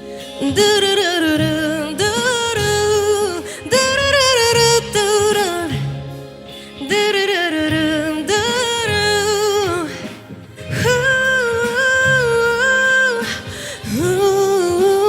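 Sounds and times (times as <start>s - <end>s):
soft low accompaniment: 0.0s - 15.0s
woman singing wordless melody: 0.0s - 15.0s.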